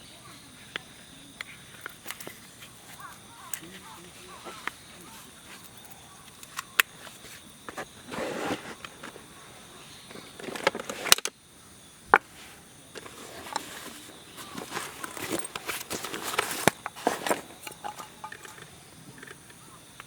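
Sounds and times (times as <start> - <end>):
rustling handling noises: 1.6 - 11.3, 12.1 - 19.4.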